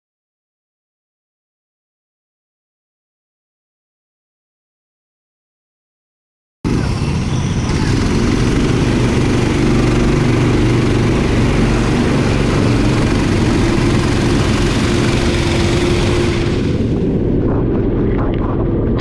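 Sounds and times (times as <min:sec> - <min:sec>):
loud rushing hiss: 0:06.7 - 0:17.0
go-kart engine running: 0:06.7 - 0:17.4.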